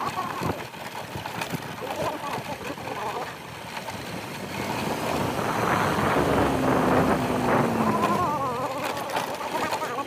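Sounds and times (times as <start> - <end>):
motorcycle engine running: 0.0 - 10.0
wind on microphone: 4.6 - 8.6.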